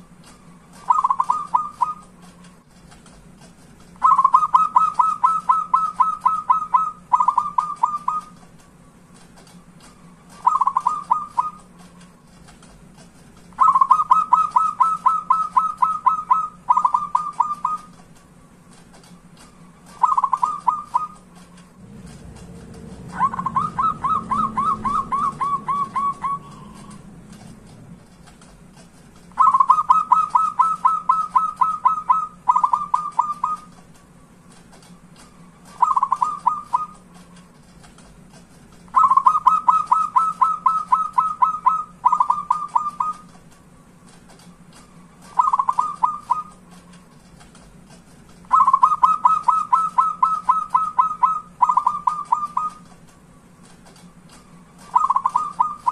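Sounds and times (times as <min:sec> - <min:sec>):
dove cooing: 0:00.8 - 0:02.1, 0:04.0 - 0:08.4, 0:10.4 - 0:11.7, 0:13.6 - 0:17.9, 0:20.0 - 0:21.2, 0:21.8 - 0:27.4, 0:29.4 - 0:33.7, 0:35.8 - 0:37.1, 0:38.9 - 0:43.3, 0:45.3 - 0:46.6, 0:48.5 - 0:52.8, 0:54.9 - 0:55.9.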